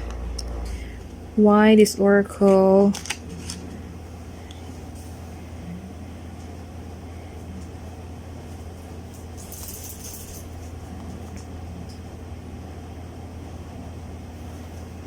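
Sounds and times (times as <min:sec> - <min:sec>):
steady low hum: 0:00.0 - 0:15.0
paper pages rustling: 0:02.9 - 0:03.8.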